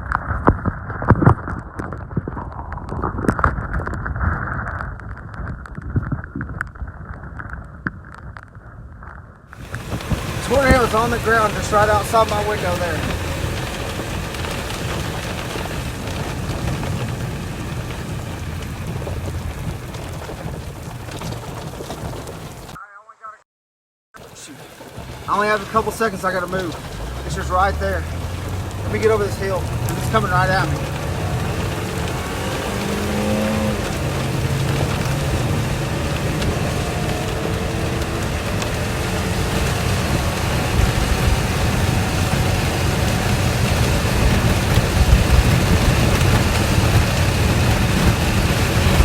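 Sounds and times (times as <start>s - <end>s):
car engine and road noise: 0.0s - 22.8s, 24.2s - 49.0s
low steady rumble: 9.6s - 22.8s, 24.4s - 36.6s
rain pelting vehicle roof: 9.6s - 22.8s, 24.2s - 49.0s.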